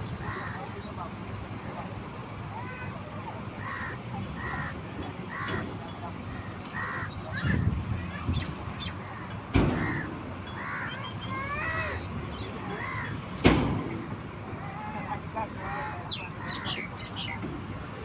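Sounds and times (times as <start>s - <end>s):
harsh bird call: 6.2s - 13.2s.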